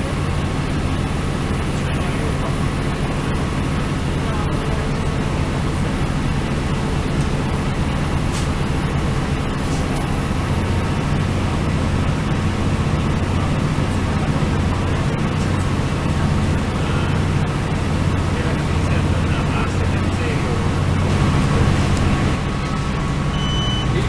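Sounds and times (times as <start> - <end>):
diesel engine drone: 0.0 - 24.0
train wheels rumbling on rails: 0.0 - 24.0.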